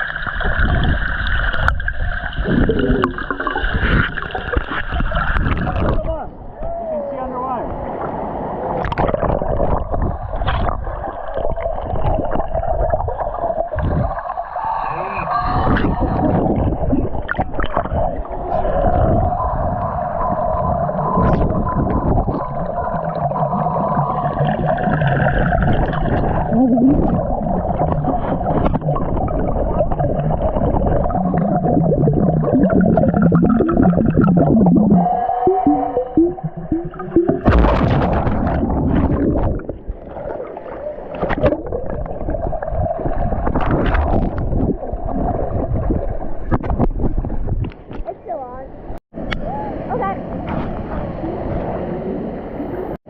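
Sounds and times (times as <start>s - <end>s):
underwater rumble and gurgle: 0.0s - 6.6s, 7.7s - 53.0s
wavering low tones: 15.4s - 46.9s
steady tone: 30.8s - 40.0s.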